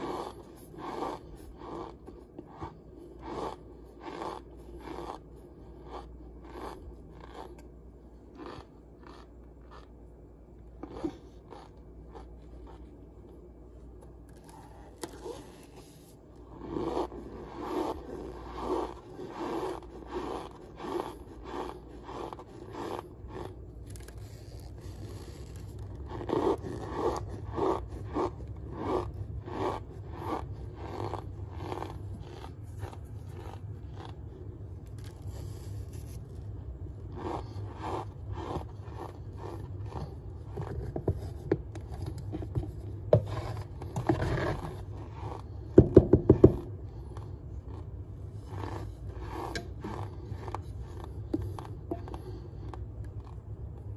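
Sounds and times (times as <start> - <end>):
cornstarch squeaky crunches: 8.4 - 10.0.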